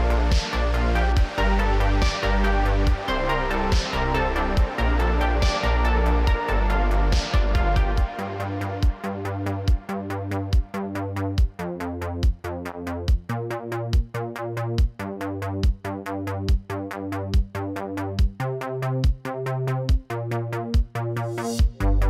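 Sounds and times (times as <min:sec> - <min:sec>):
fast hi-hats: 0:00.0 - 0:09.0
held synth chords: 0:00.0 - 0:10.8
kick drum: 0:00.3 - 0:00.6, 0:02.9 - 0:03.1, 0:03.7 - 0:03.9, 0:05.4 - 0:05.6, 0:06.3 - 0:06.5, 0:14.8 - 0:15.0, 0:15.6 - 0:15.8, 0:17.4 - 0:17.6, 0:18.2 - 0:18.4, 0:19.0 - 0:19.2, 0:19.9 - 0:20.1, 0:20.8 - 0:21.0, 0:21.6 - 0:21.8
drum machine beat: 0:00.3 - 0:03.1, 0:03.7 - 0:06.5, 0:07.1 - 0:08.2, 0:08.8 - 0:09.1.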